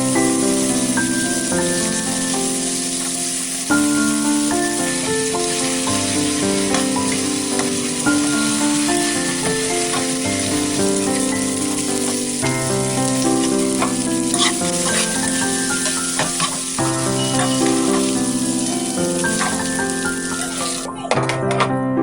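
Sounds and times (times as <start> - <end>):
food sizzling in a pan: 0.0 - 21.2
utensil clicking against pan: 6.4 - 18.2, 18.9 - 21.6.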